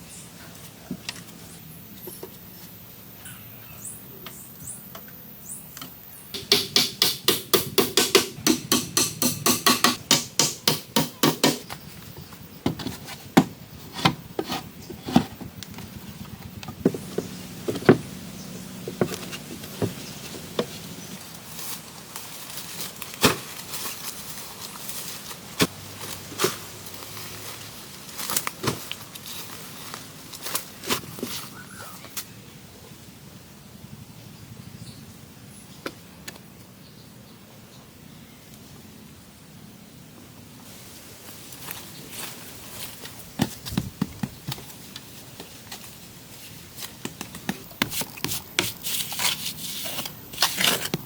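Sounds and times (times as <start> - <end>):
tool striking wood: 6.4 - 11.8.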